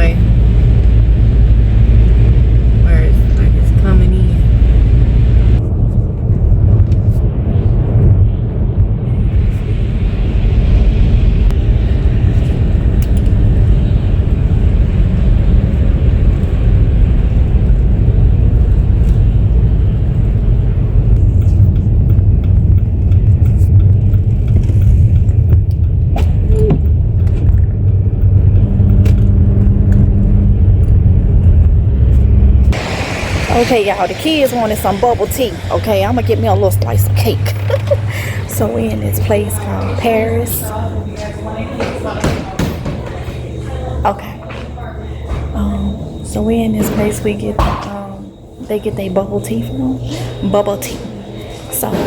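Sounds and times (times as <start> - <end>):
car driving road rumble: 0.0 - 52.0.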